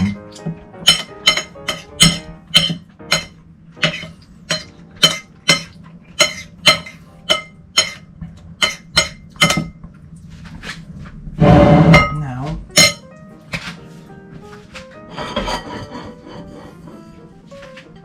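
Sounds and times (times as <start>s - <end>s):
metal utensil clinking against bowl: 0.0s - 9.8s, 12.8s - 13.1s.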